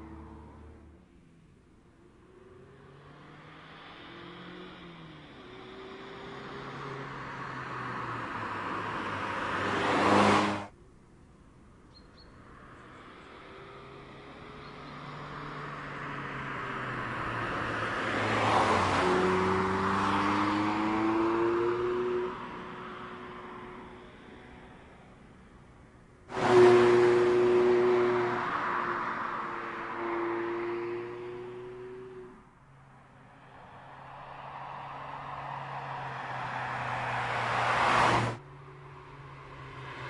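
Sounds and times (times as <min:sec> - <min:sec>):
car engine accelerating: 0:12.8 - 0:25.5.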